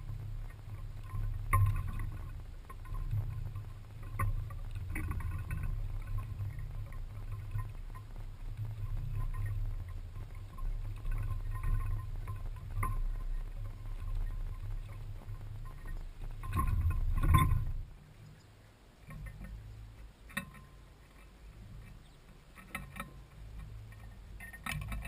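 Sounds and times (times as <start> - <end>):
birds chirping faintly: 0.0 - 25.0
low microphone rumble: 0.0 - 25.0.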